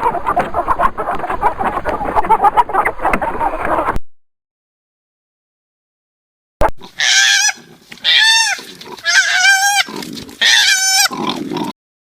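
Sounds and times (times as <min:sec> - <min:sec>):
farm animal calling: 0:06.8 - 0:11.5.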